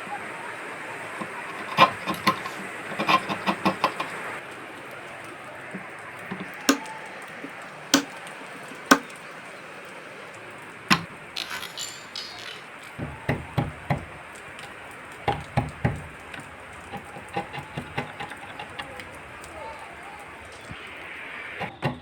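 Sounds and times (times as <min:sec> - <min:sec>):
scraping: 0:01.1 - 0:04.4, 0:10.9 - 0:21.1
hammer blows on wood: 0:06.7 - 0:07.0, 0:08.0 - 0:08.2, 0:08.9 - 0:09.2.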